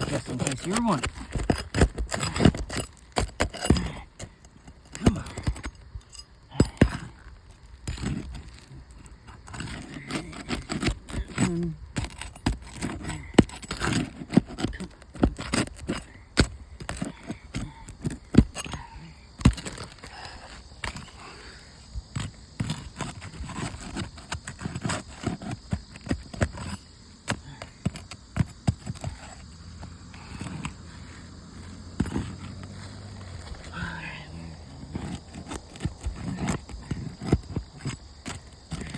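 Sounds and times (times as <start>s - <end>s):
tool prying up shingles: 0.0s - 38.9s.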